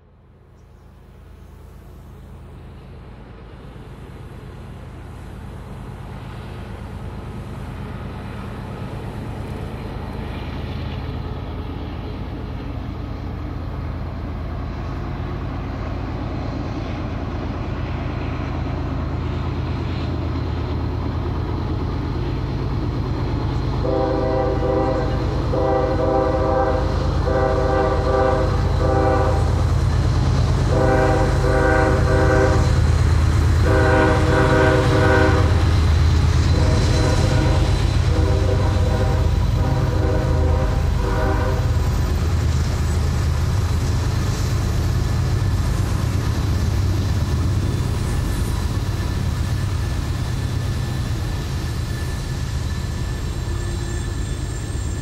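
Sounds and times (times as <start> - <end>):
diesel locomotive engine rumble: 0.0 - 55.0
locomotive air horn blasts: 23.8 - 29.6, 30.6 - 32.8, 33.6 - 35.8, 36.5 - 41.8.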